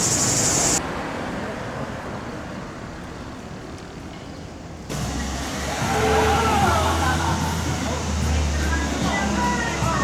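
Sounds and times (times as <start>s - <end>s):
cicadas chorus: 0.0s - 0.8s
distant traffic hum: 0.0s - 10.0s.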